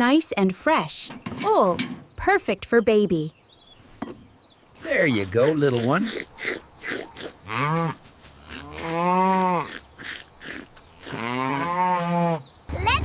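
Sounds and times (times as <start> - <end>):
cow mooing: 5.3 - 9.8, 10.4 - 12.5.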